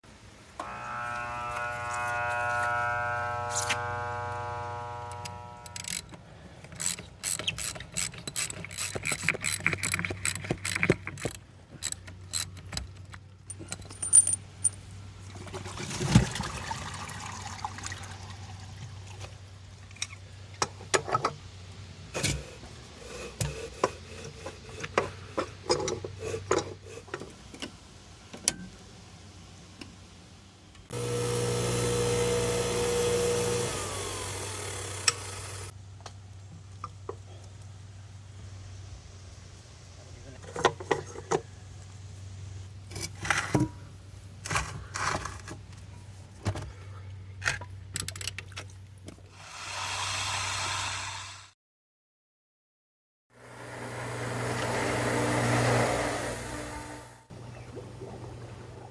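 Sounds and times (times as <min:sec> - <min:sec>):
faint electrical hum: 0:00.1 - 0:09.4
pool pump running: 0:00.5 - 0:06.2, 0:30.9 - 0:35.8, 0:53.4 - 0:58.9
tools clicking and knocking on pump: 0:05.7 - 0:14.8, 0:22.2 - 0:28.6, 0:40.4 - 0:41.5, 0:47.4 - 0:49.2.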